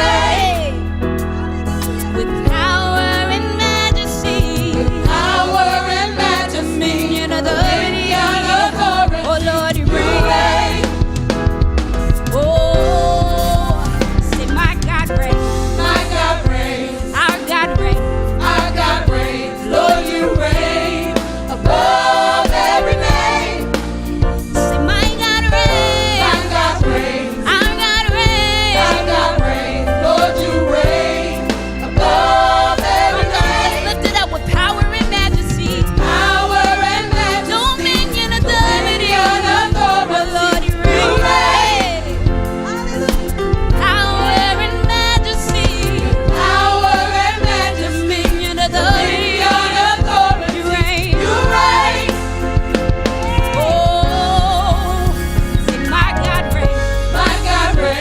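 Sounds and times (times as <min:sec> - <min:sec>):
band playing: 0:00.0 - 0:58.0
gospel choir singing: 0:00.0 - 0:58.0
steady bass: 0:00.0 - 0:58.0.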